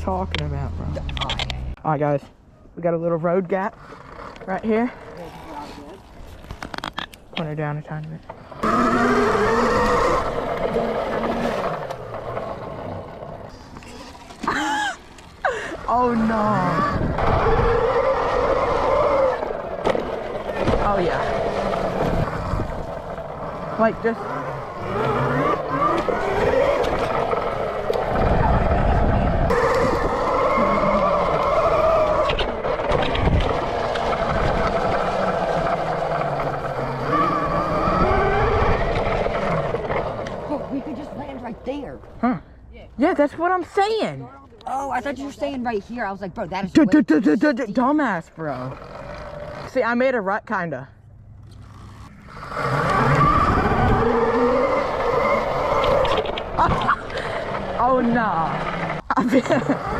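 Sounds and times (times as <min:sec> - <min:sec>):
electric motorbike motor whining: 0:03.5 - 0:14.8, 0:15.5 - 0:41.9, 0:47.4 - 0:50.1, 0:51.1 - 0:59.9
low rumble: 0:19.2 - 0:42.2.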